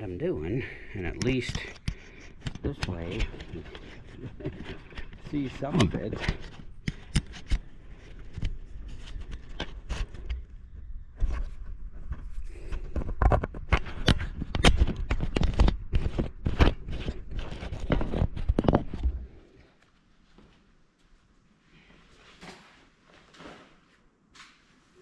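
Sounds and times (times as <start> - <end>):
hands handling hardware: 1.1 - 10.6.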